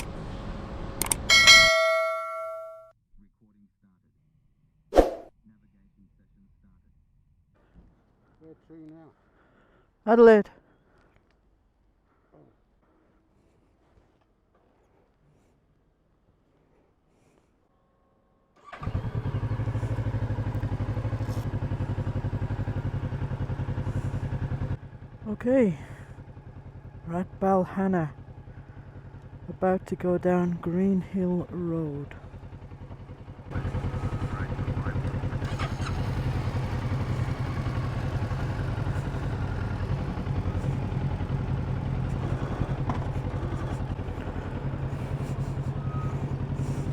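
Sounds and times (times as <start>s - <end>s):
motorcycle engine starting and idling: 0.0s - 2.9s, 18.6s - 46.9s.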